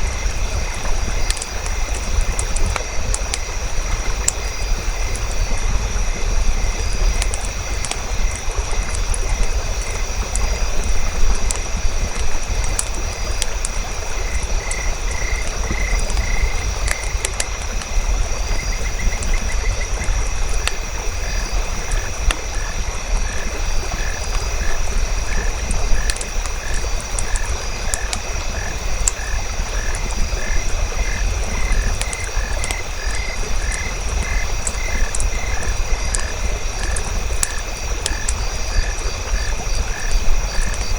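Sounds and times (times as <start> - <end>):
campfire crackling and popping: 0.0 - 40.9
frogs croaking: 0.0 - 40.9.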